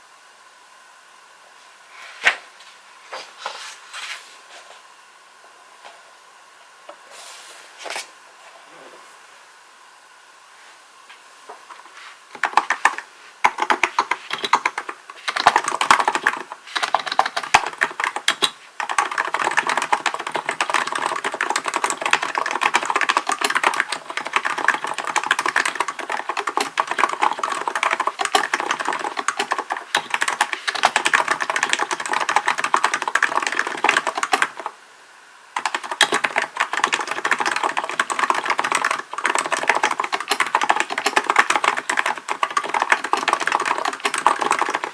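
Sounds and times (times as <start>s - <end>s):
keyboard typing: 12.3s - 34.8s, 35.6s - 44.9s.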